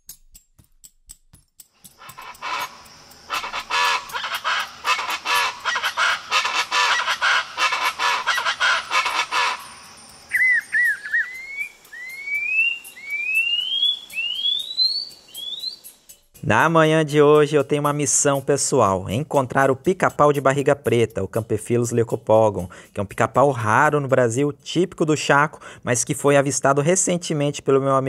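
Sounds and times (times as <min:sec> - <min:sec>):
birds calling in harsh chorus: 0:01.9 - 0:16.1
bird whistling thin rising notes: 0:02.0 - 0:16.3.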